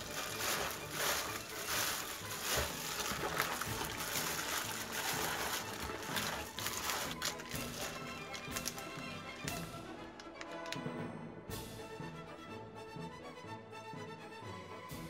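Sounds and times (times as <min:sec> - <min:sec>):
wet chewing of raw fish: 0:00.0 - 0:08.8.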